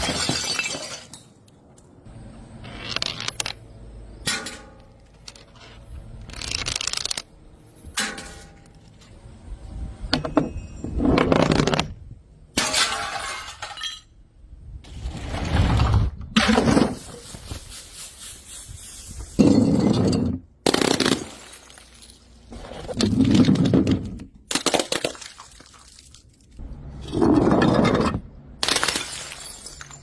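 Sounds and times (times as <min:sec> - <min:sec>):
glass bottles smashing: 0:00.0 - 0:01.3, 0:12.6 - 0:14.1, 0:19.4 - 0:22.5, 0:28.6 - 0:30.0.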